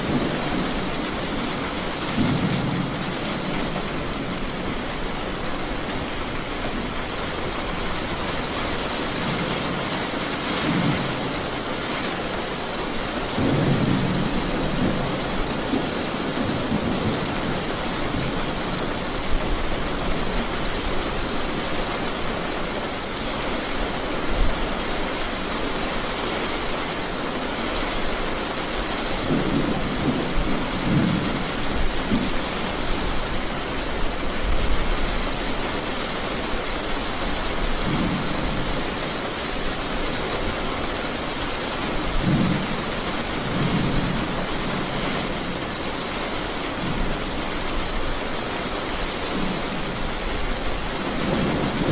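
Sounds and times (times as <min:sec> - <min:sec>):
thunder rumbling: 0:00.0 - 0:08.1
heavy rain falling: 0:00.0 - 0:51.9.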